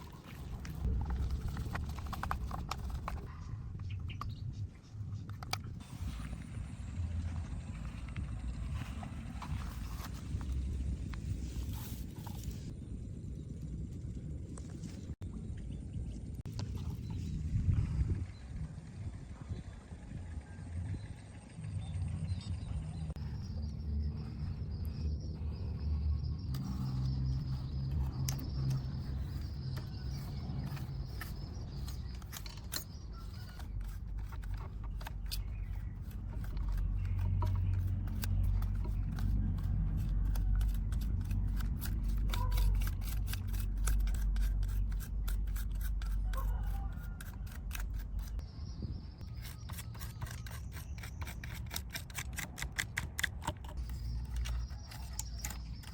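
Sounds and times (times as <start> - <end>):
rapid scraping clicks: 26.4 - 48.4, 49.4 - 55.9.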